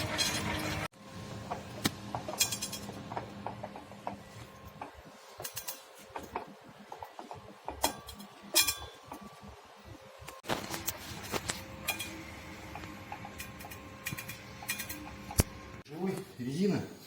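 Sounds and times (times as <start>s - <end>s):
drive-shaft joints clicking and squeaking: 13.1s - 15.3s.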